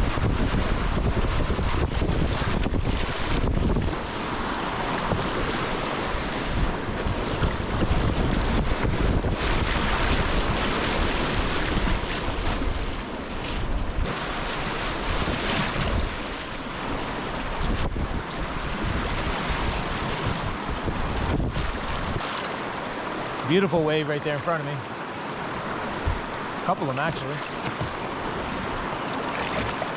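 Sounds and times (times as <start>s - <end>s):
wind buffeting microphone: 0.0s - 22.2s
river rapids rushing: 3.9s - 9.2s, 9.8s - 17.6s.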